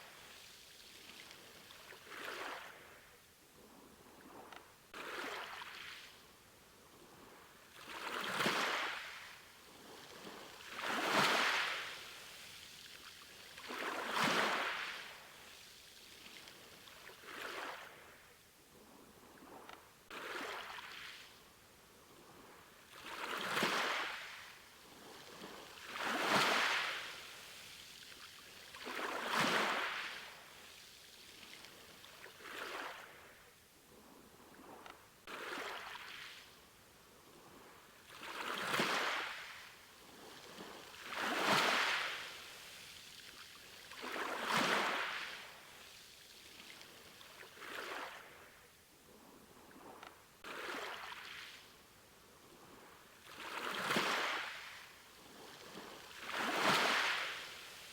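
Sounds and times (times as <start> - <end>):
small sea waves washing on shore: 7.0 - 18.4, 19.3 - 33.5, 34.5 - 48.7, 52.4 - 57.9.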